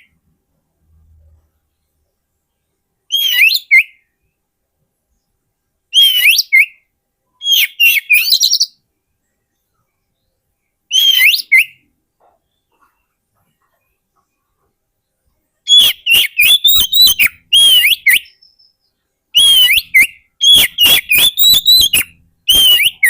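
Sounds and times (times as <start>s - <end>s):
bird whistled song: 3.1s - 4.3s, 5.9s - 8.8s, 10.9s - 11.9s, 15.7s - 23.0s.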